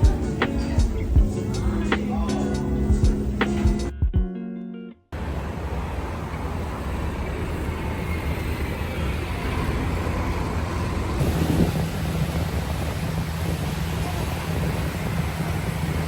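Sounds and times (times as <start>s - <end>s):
ferry engine rumble: 0.0s - 3.9s, 5.2s - 16.0s
wind: 0.0s - 3.9s, 5.1s - 16.0s
water noise: 5.2s - 16.0s.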